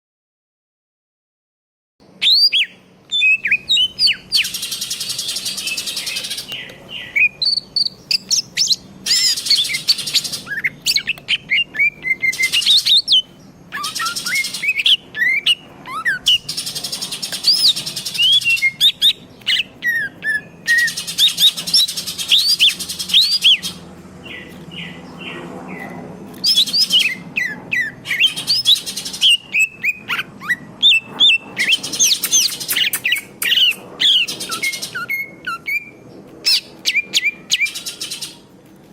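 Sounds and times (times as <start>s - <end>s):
bird singing whistled notes: 2.0s - 38.5s
bird chattering: 2.2s - 38.4s.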